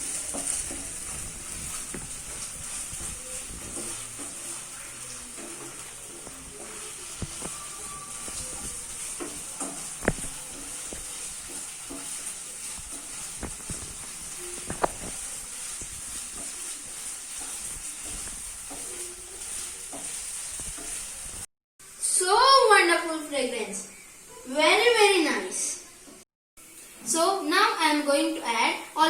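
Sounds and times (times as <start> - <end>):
utensil stirring and knocking pan: 0.0 - 21.5
onions sizzling in oil: 0.0 - 25.5.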